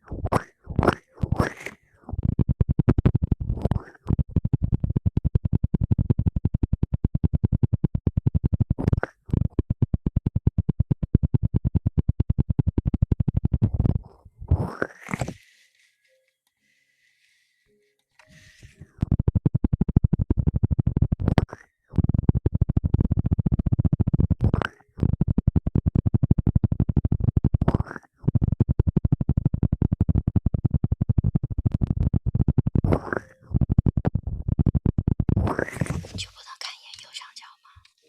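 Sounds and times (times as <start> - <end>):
rhythmic scratching on microphone: 0.0 - 16.2, 18.2 - 38.0.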